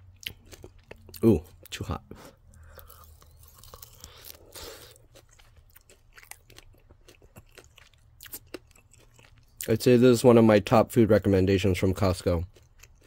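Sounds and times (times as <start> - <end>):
person chewing crispy food: 0.0 - 9.9, 12.0 - 13.0.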